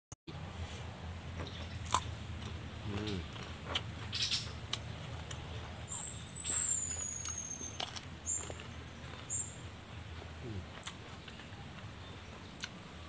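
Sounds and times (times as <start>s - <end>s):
person chewing raw vegetables: 1.5s - 9.4s, 10.1s - 13.0s
high thin bird whistle: 5.9s - 7.8s
short bird chirps: 5.9s - 8.4s.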